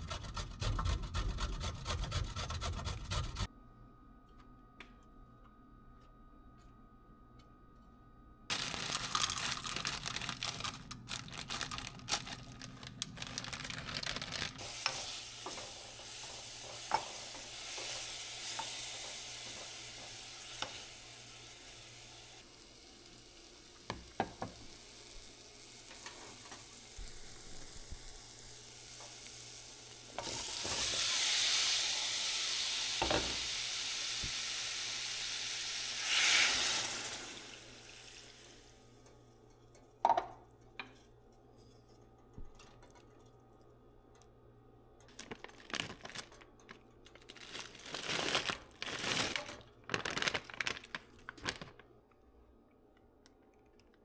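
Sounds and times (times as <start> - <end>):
food sizzling in frying pan: 14.6 - 38.8.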